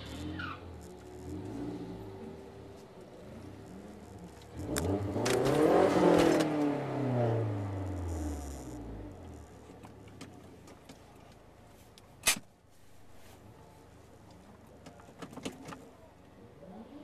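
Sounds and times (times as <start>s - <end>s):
car engine idling: 0.0s - 12.2s.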